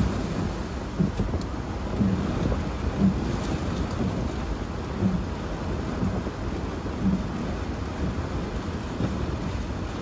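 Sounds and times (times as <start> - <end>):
heavy rain beating on a car: 0.0 - 10.0
low rumble of wind: 0.0 - 10.0.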